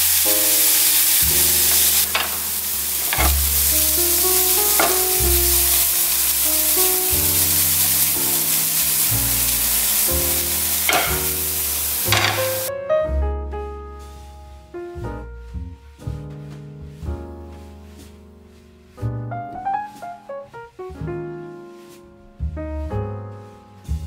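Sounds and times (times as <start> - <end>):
corn sizzling in butter: 0.0 - 12.7
background music with piano: 0.0 - 24.0.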